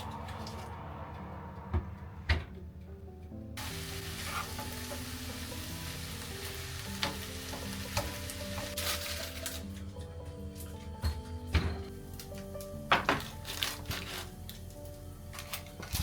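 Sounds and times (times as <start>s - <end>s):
soft background music: 0.0s - 16.0s
food sizzling in a frying pan: 3.6s - 9.6s.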